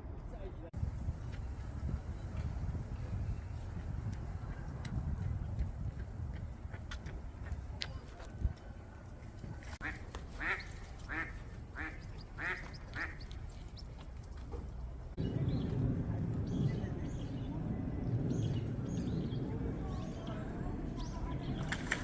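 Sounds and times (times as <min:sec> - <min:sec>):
wind buffeting microphone: 0:00.7 - 0:22.0
duck quacking: 0:09.8 - 0:13.2.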